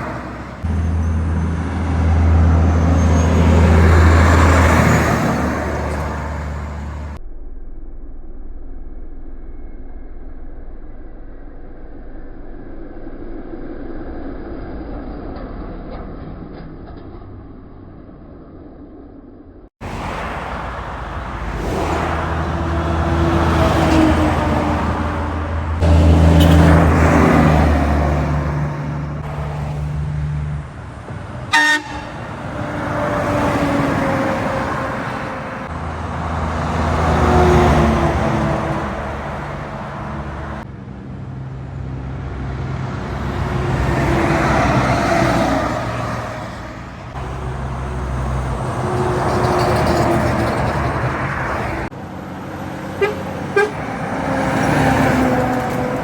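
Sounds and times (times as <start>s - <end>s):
heavy trucks passing: 0.0s - 7.2s, 19.8s - 56.0s
short sharp horn blast: 23.3s - 28.1s, 31.5s - 32.5s, 53.0s - 53.9s.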